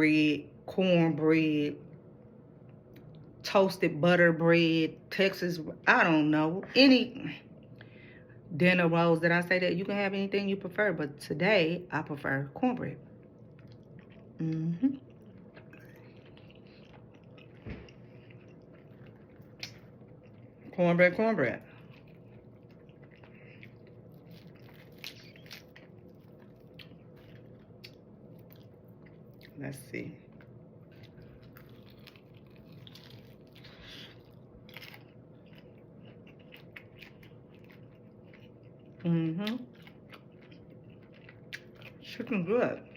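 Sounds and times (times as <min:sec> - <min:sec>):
person chewing food: 0:13.1 - 0:20.8, 0:21.6 - 0:29.6, 0:30.3 - 0:42.0
person humming: 0:14.4 - 0:15.0.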